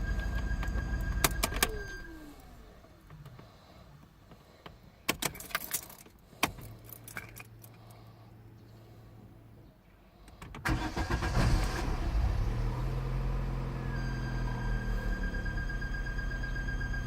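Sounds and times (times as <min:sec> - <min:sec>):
car engine cranking and running: 0:00.0 - 0:08.0, 0:10.3 - 0:17.0
keys jangling in ignition: 0:05.1 - 0:08.0.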